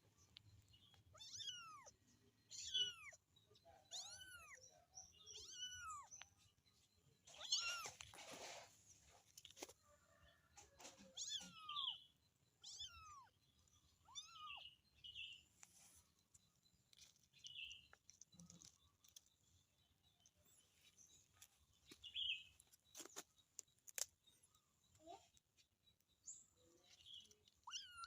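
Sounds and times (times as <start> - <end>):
kitten meowing: 1.2 - 1.9, 2.5 - 3.2, 3.9 - 4.6, 5.3 - 6.1, 12.6 - 13.3, 14.0 - 14.6.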